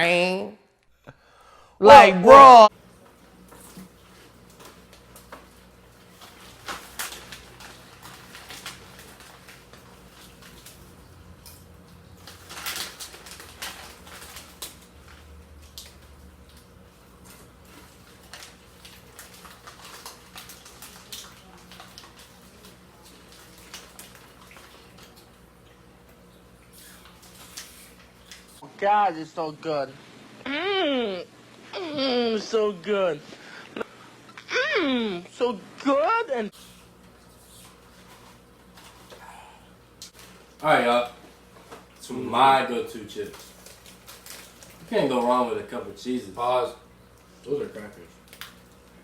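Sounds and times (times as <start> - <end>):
snack packaging rustling: 3.0 - 28.6, 36.6 - 39.2, 40.0 - 49.0.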